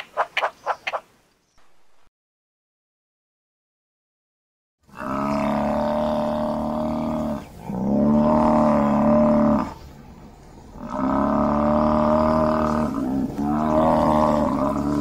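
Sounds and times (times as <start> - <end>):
buffalo bellowing: 4.9 - 9.8, 10.8 - 15.0.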